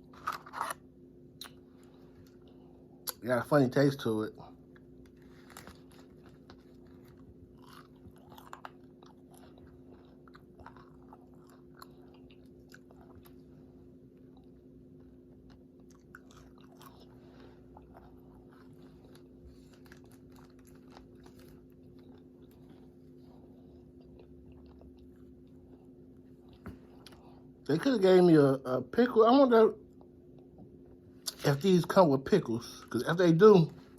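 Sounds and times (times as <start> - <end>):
steady low hum: 0.0 - 33.9
chewing crunchy food: 4.4 - 27.6.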